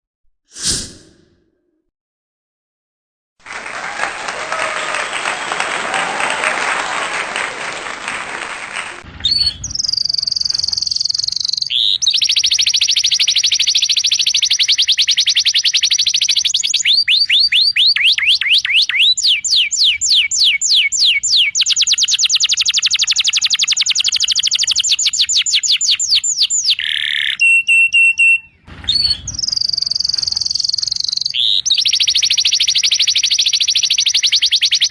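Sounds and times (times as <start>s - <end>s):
canary singing trills: 9.3s - 34.9s.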